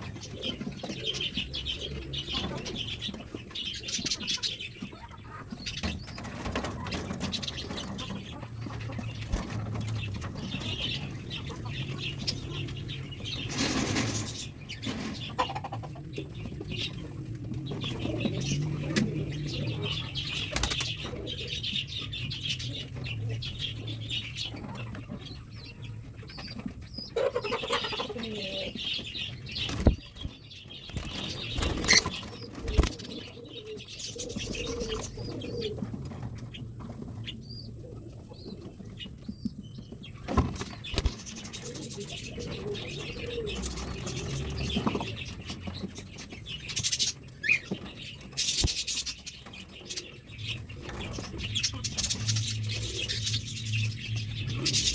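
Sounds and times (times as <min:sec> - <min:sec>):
pigeons cooing: 0:00.0 - 0:54.9
wings flapping: 0:20.2 - 0:21.1, 0:29.6 - 0:33.3, 0:40.3 - 0:41.6.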